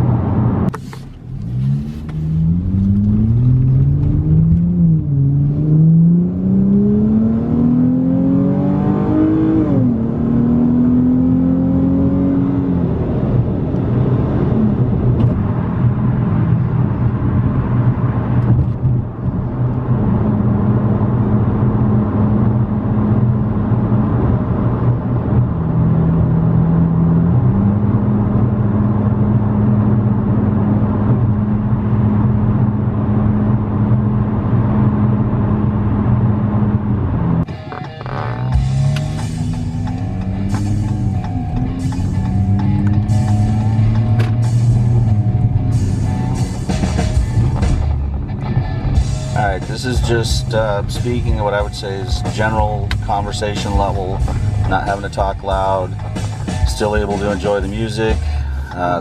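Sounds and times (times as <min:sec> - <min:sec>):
car engine accelerating and cruising: 0:00.0 - 0:59.0.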